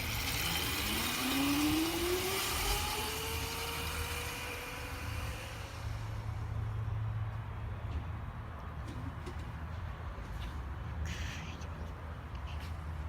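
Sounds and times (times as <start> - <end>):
electric motor whining: 0.0 - 6.3.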